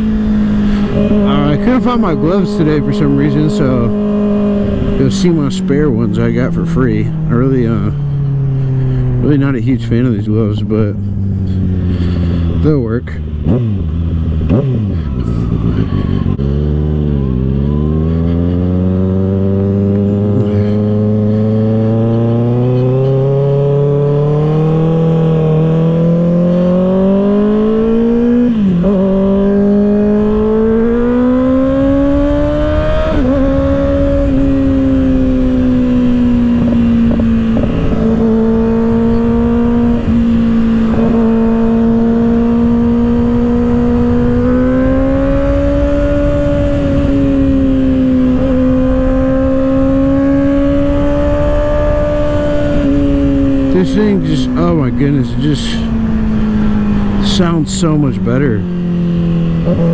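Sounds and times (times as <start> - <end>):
motorcycle engine revving through gears: 0.0 - 59.9.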